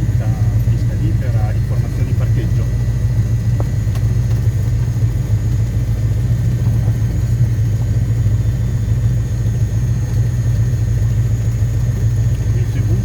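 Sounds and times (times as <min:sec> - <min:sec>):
propeller airplane engine drone: 0:00.0 - 0:13.0.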